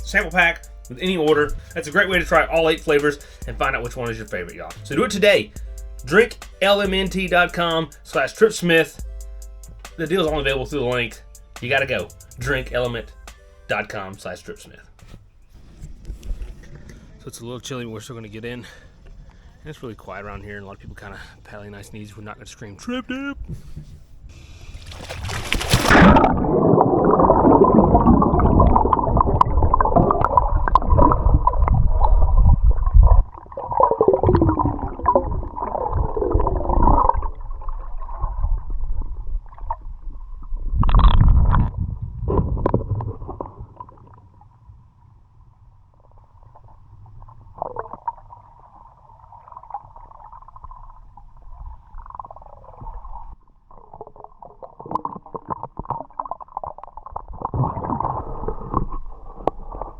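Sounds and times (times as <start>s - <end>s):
muffled underwater gurgling: 0.0s - 8.8s, 25.9s - 44.2s.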